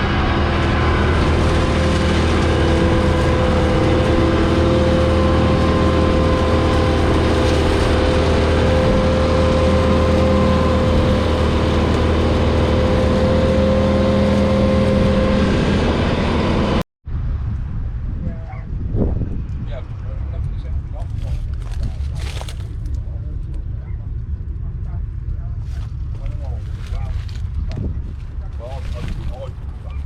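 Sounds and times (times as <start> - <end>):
tractor diesel engine running: 0.0 - 16.8
steady whine: 0.0 - 30.0.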